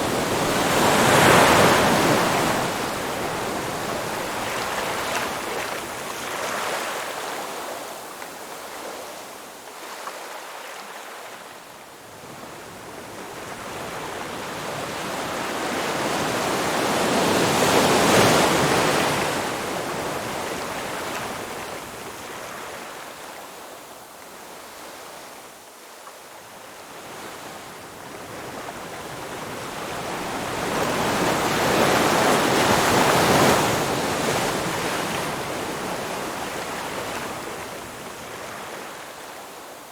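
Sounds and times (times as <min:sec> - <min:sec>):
ocean surf washing on shore: 0:00.0 - 0:07.8, 0:28.3 - 0:39.6.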